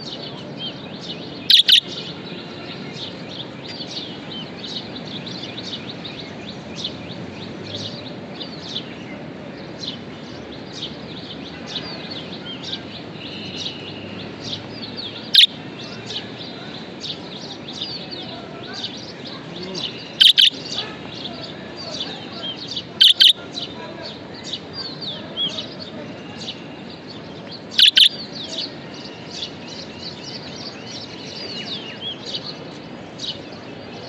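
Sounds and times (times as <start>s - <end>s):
low background noise: 0.0s - 34.0s
budgerigars chirping: 1.4s - 2.1s, 15.2s - 15.6s, 19.8s - 20.8s, 22.7s - 23.7s, 27.7s - 28.2s
sharp bird call: 1.5s - 2.0s, 15.3s - 15.5s, 20.1s - 20.8s, 23.0s - 23.4s, 27.8s - 28.2s.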